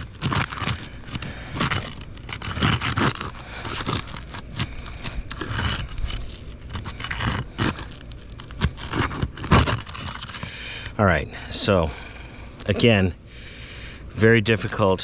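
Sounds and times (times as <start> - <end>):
scraping and prying roof shingle: 0.0 - 11.0
shingle tearing: 0.0 - 11.0.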